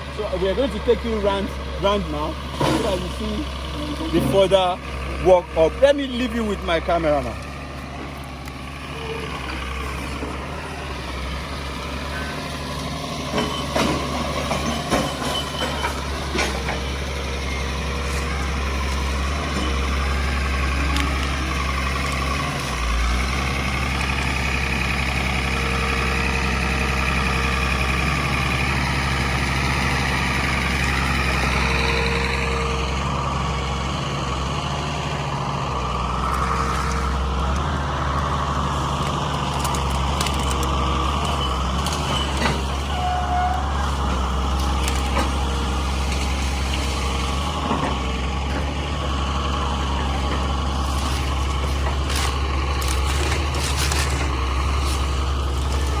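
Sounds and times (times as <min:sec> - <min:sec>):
heavy machine engine running: 0:00.0 - 0:56.0
sharp knocks and clatter: 0:13.2 - 0:17.0.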